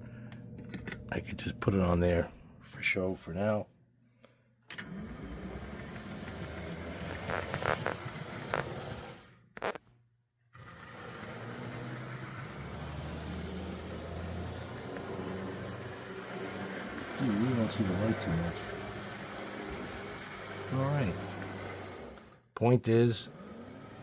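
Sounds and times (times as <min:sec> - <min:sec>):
model train motor whirring: 0:04.7 - 0:09.8, 0:10.6 - 0:24.0.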